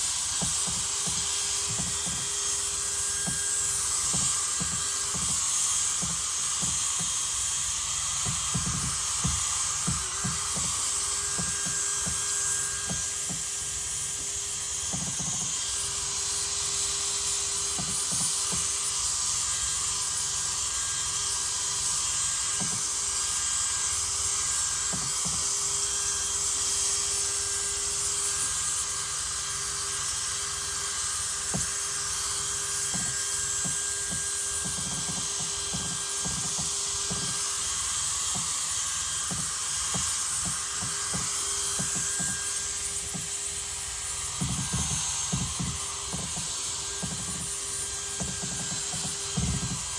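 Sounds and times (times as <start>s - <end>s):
power drill motor whine: 0.0s - 49.9s
buffing pad hissing: 31.4s - 49.9s.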